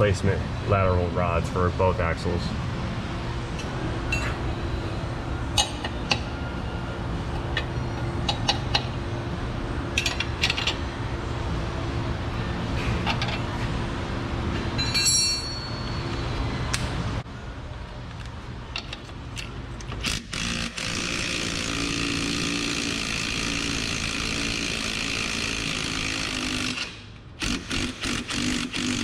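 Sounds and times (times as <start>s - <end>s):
steady hum: 0.0s - 29.0s
metal tools clinking: 14.8s - 16.4s.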